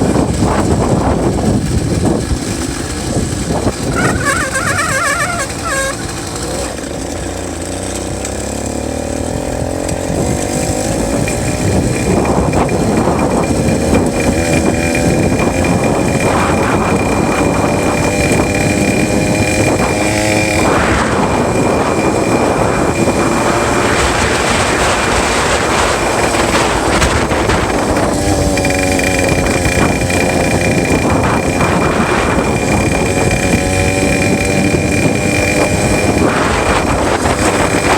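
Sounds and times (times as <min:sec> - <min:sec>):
two-stroke bicycle engine running: 0:00.0 - 0:37.9
high-pitched squeal: 0:03.8 - 0:06.7.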